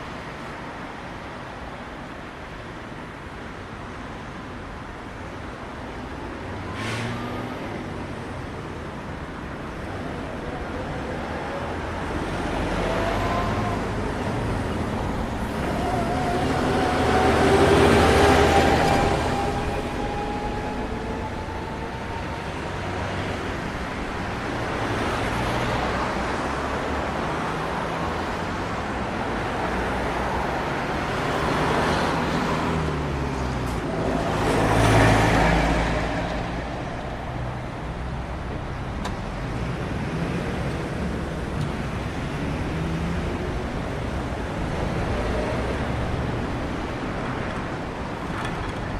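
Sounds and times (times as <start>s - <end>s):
road traffic: 0.0s - 48.9s
vehicle passing close: 12.1s - 25.8s.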